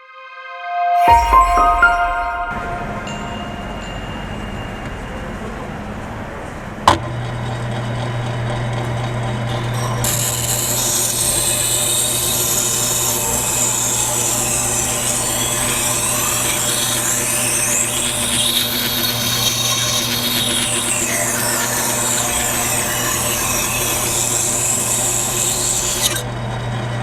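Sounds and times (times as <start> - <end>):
sharpener motor hum: 10.0 - 26.2.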